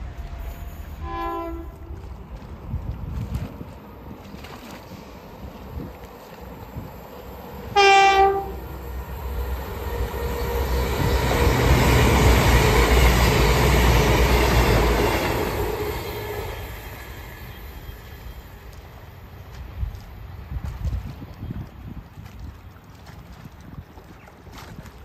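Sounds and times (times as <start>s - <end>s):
diesel train horn blast: 0.0s - 2.2s, 7.6s - 9.0s
train passing close by: 0.0s - 21.4s.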